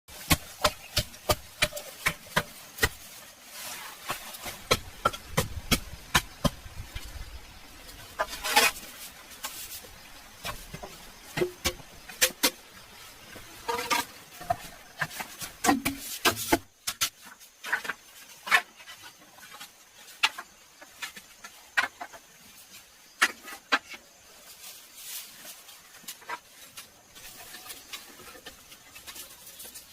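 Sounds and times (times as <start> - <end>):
scraping sounds: 0.1 - 29.9
sharp taps and knocks: 4.4 - 7.1.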